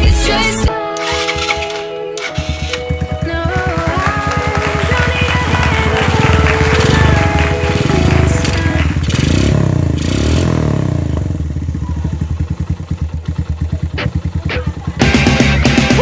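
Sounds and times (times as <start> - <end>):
guitar music: 1.0 - 10.6, 13.8 - 16.0
motorcycle engine idling: 1.0 - 16.0.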